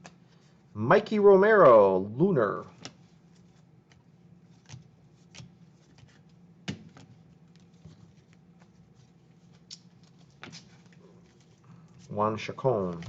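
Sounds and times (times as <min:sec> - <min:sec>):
steady low hum: 0:00.0 - 0:13.0
cards tapping and flicking: 0:02.7 - 0:11.6.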